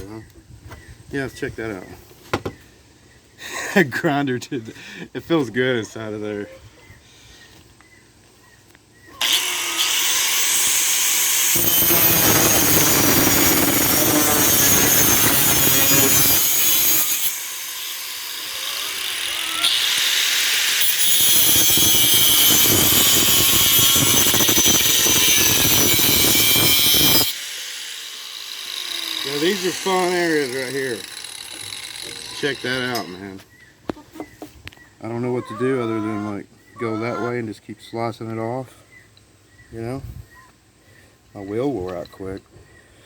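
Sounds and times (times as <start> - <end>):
electric grinder grinding steel: 9.2 - 33.3.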